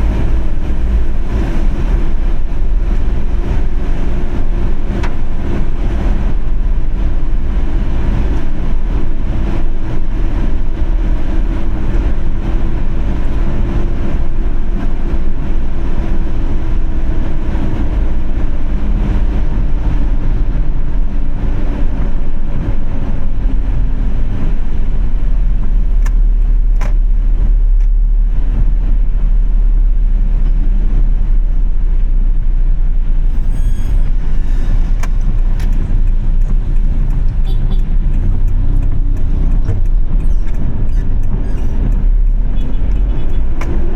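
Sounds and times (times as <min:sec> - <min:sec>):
car engine and road rumble: 0:00.0 - 0:43.9
sharp clicks: 0:35.0 - 0:43.8
ticks: 0:35.0 - 0:43.8.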